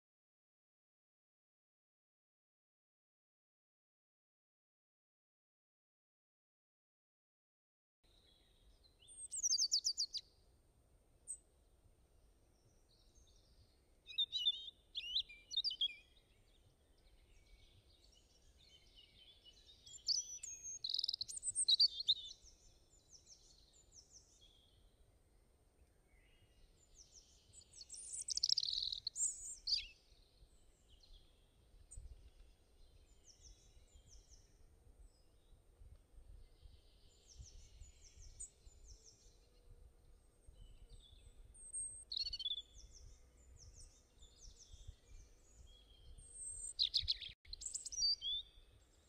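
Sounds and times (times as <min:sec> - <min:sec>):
faint low background noise: 0:08.0 - 0:49.0
birds chirping: 0:12.6 - 0:24.8, 0:26.1 - 0:35.5, 0:36.6 - 0:49.0.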